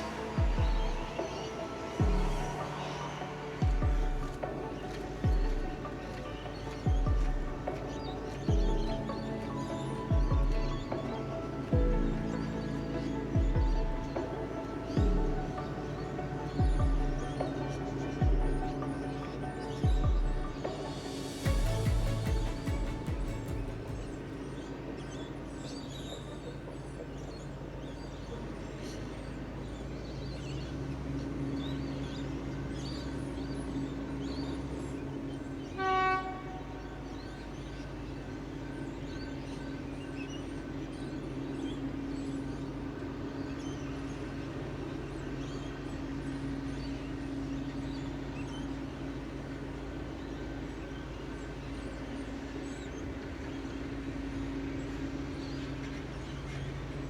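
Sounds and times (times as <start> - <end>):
diesel locomotive running: 0.0 - 57.0
train horn blast: 35.8 - 37.0.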